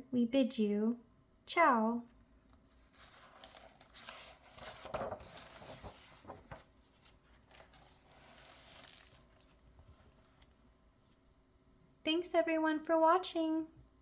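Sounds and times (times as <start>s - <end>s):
paper rustling: 2.5s - 11.2s.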